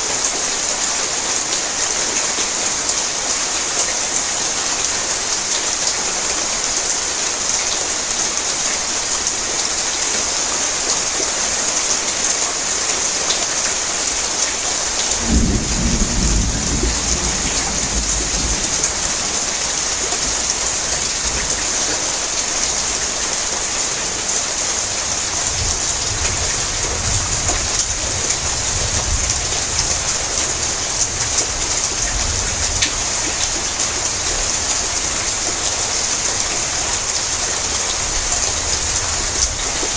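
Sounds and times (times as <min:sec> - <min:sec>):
heavy rain on a tin roof: 0:00.0 - 0:39.9
thunder rumbling: 0:15.1 - 0:22.0, 0:25.0 - 0:34.6.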